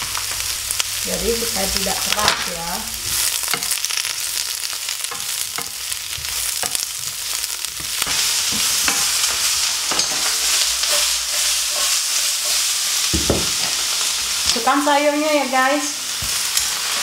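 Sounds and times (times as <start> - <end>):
food sizzling in frying pan: 0.0 - 17.0
wooden spatula knocking pan: 13.1 - 13.8.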